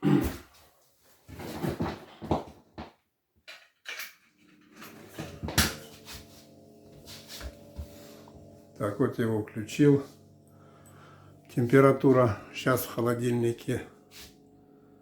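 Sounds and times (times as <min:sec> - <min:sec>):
refrigerator compressor hum: 0:04.9 - 0:15.0.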